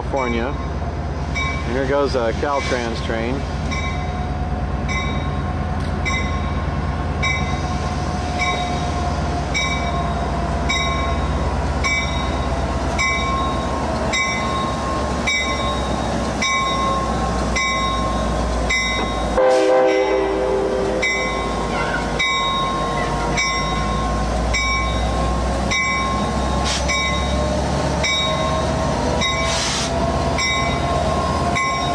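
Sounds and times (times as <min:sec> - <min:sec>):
diesel train engine rumbling: 0:00.0 - 0:31.9
warning bell ringing: 0:03.7 - 0:07.7, 0:08.4 - 0:20.2, 0:21.0 - 0:29.5, 0:30.3 - 0:31.9
train horn blast: 0:19.3 - 0:22.2.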